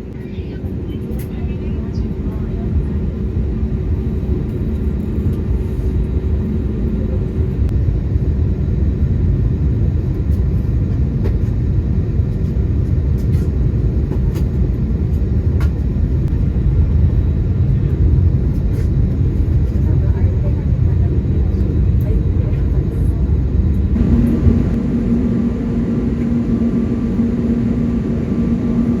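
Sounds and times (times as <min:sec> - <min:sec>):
airplane cabin engine rumble: 0:00.0 - 0:29.0.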